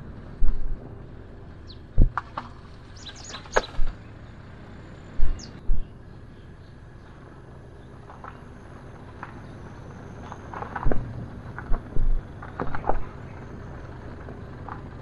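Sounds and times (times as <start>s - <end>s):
birds chirping: 0.0s - 15.0s
low outdoor rumble: 0.0s - 15.0s
dull thumps: 2.0s - 2.4s, 10.8s - 13.0s.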